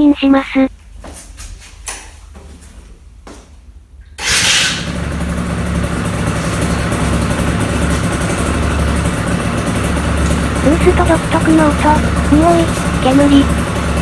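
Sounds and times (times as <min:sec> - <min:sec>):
two-stroke engine starting and idling: 0:04.2 - 0:14.0.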